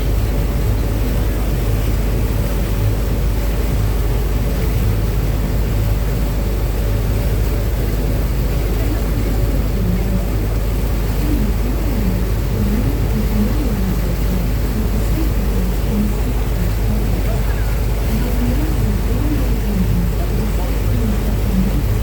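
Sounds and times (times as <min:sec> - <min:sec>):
boat engine drone: 0:00.0 - 0:22.0
rush of wind and water: 0:00.0 - 0:22.0.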